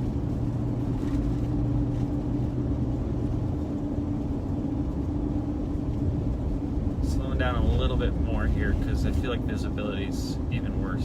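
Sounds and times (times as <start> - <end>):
car cabin road noise: 0.0 - 11.0.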